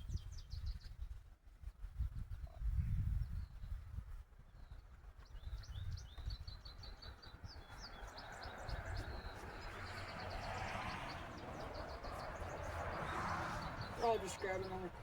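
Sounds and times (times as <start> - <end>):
wind rumble on microphone: 0.0 - 15.0
songbird chirping: 4.6 - 15.0.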